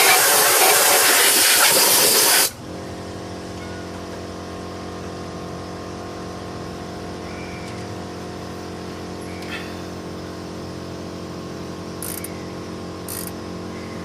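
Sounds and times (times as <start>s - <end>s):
spray gun hissing: 0.0s - 2.6s.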